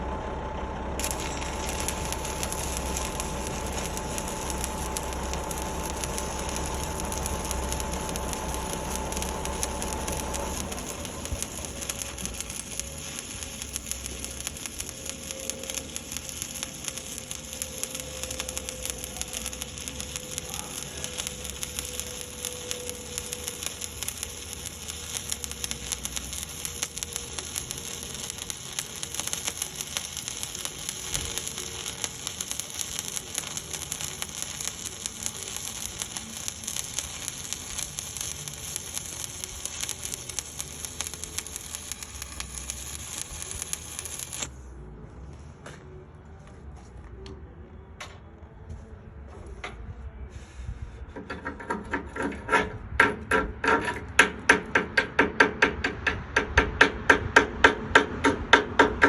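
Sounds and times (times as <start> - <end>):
machine hum and rumble: 0.0 - 45.6
welding arc crackling: 1.0 - 44.6.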